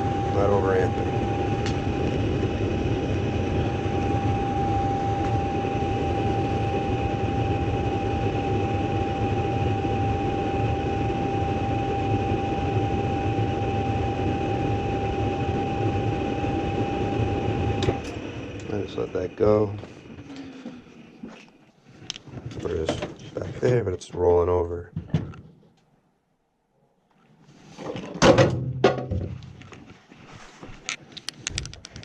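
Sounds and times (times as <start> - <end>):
high whine: 0.0 - 23.9.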